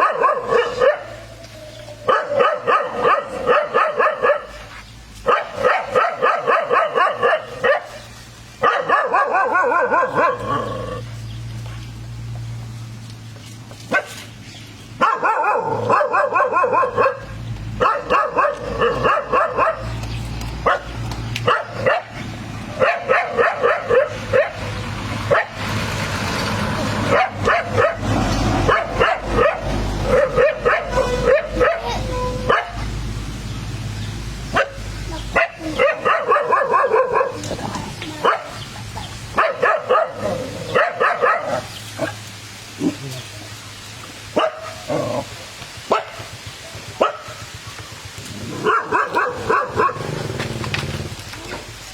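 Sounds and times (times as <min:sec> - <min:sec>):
dog barking: 0:00.0 - 0:01.3, 0:02.0 - 0:11.0, 0:13.9 - 0:14.2, 0:15.0 - 0:20.0, 0:20.6 - 0:22.2, 0:22.8 - 0:24.7, 0:25.3 - 0:25.6, 0:27.1 - 0:32.9, 0:34.5 - 0:37.5, 0:38.2 - 0:38.6, 0:39.4 - 0:42.2, 0:44.3 - 0:45.0, 0:45.9 - 0:47.4, 0:48.5 - 0:50.1.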